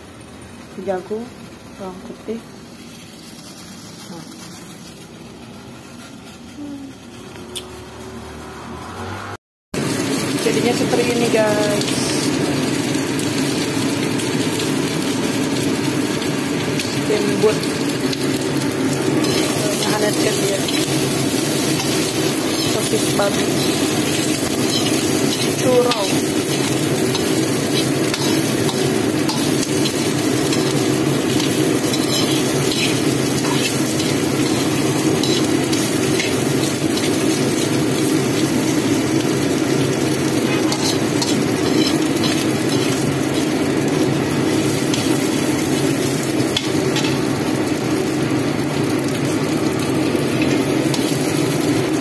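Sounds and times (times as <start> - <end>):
food sizzling in hot oil: 0.0 - 9.2, 9.8 - 52.0
metal ladle scraping pan: 31.4 - 37.2, 40.5 - 43.5.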